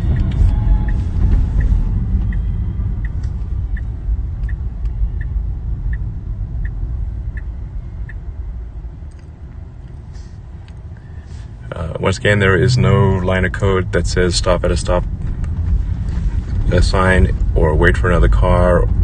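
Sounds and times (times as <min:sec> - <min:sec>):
road rumble inside car: 0:00.0 - 0:19.0
turn signal ticking: 0:00.0 - 0:19.0.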